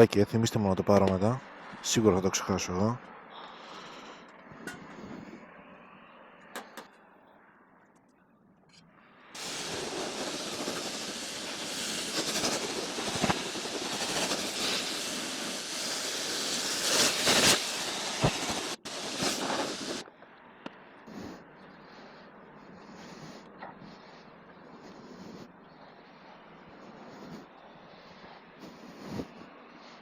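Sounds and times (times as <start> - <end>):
pressure washer water jet hiss: 9.4 - 20.0.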